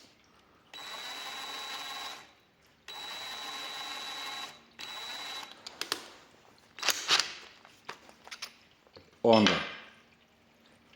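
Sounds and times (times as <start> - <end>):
cordless drill whining: 0.7 - 2.3, 2.9 - 5.6.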